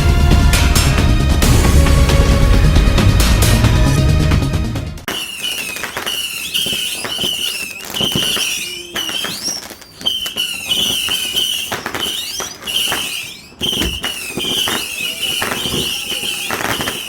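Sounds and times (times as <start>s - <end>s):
firework cracks and bangs: 5.0s - 17.0s
firework whistles: 5.1s - 17.0s.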